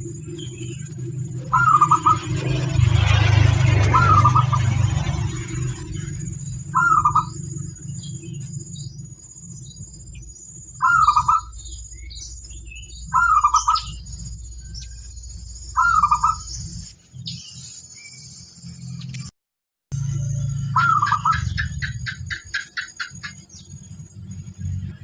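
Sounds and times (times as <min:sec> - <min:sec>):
dove cooing: 0:00.0 - 0:05.2, 0:06.7 - 0:07.4, 0:10.8 - 0:11.5, 0:13.1 - 0:13.9, 0:15.8 - 0:16.5, 0:20.8 - 0:23.3
steady low hum: 0:00.0 - 0:17.8, 0:19.9 - 0:25.0
small birds chirping: 0:00.0 - 0:19.3, 0:20.0 - 0:25.0.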